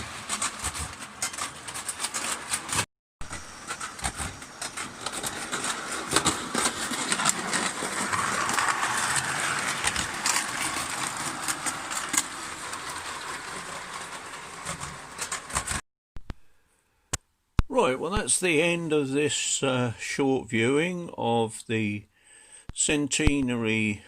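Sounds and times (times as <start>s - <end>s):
model train rattling on track: 0.0s - 15.8s.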